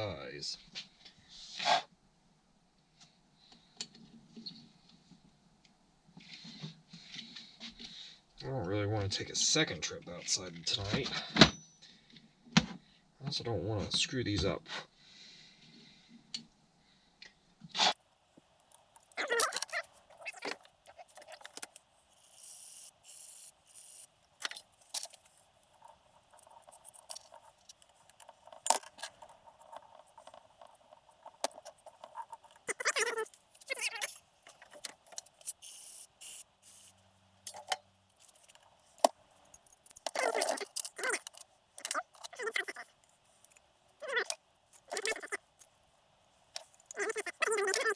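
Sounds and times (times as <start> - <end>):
small metal parts clinking: 18.5 - 47.9.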